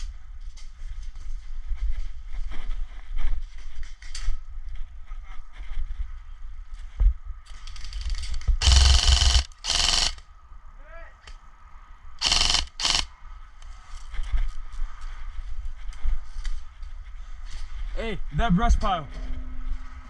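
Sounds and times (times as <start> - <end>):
airsoft gun full-auto bursts: 8.0 - 10.2, 12.2 - 13.1.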